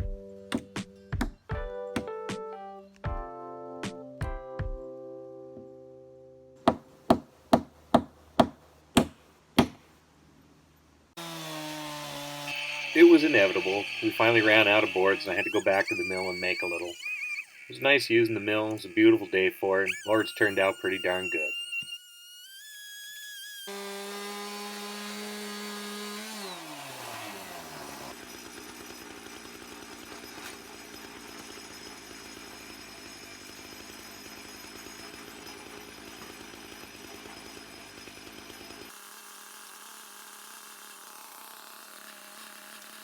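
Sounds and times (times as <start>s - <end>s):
chainsaw mill cutting log: 11.2s - 43.0s.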